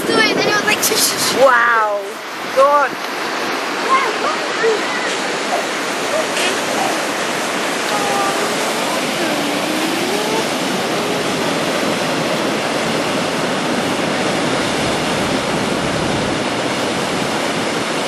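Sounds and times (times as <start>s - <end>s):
waterfall rushing: 0.0s - 18.0s
faint voices: 3.6s - 12.4s.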